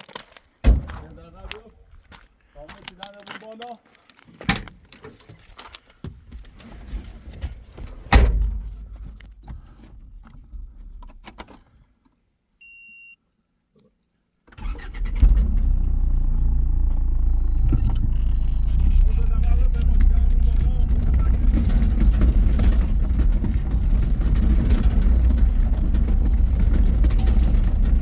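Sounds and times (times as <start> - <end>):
loud thump: 0.6 - 1.1
electronic beep: 12.6 - 13.2, 17.1 - 19.4
vehicle engine running: 15.2 - 28.0
knocking and clatter: 19.6 - 28.0.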